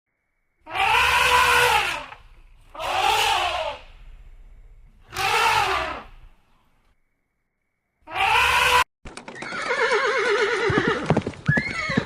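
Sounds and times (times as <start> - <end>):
elephant trumpeting: 0.7 - 6.5, 8.1 - 8.8.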